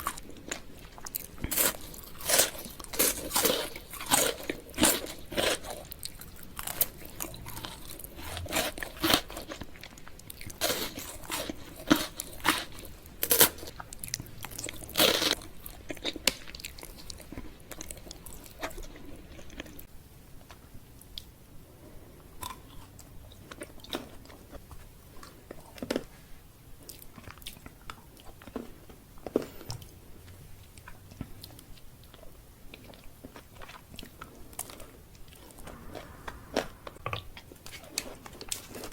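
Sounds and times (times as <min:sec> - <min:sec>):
chewing chocolate candy crunches: 0:00.0 - 0:19.8.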